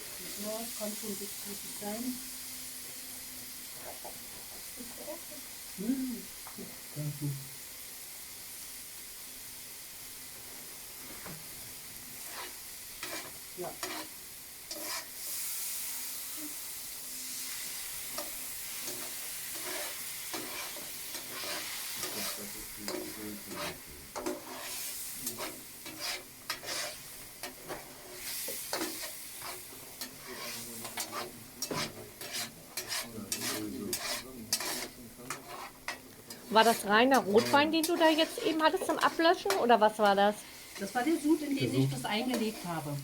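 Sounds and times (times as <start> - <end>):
sauce sizzling in a pan: 0.0 - 43.0
spoon scraping a pan: 12.2 - 15.7, 17.3 - 43.0.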